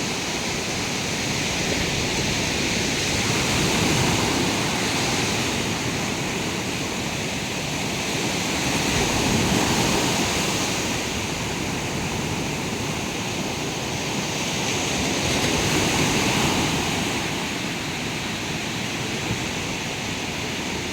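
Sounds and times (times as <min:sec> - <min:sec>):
sea waves washing onto beach: 0:00.0 - 0:20.9.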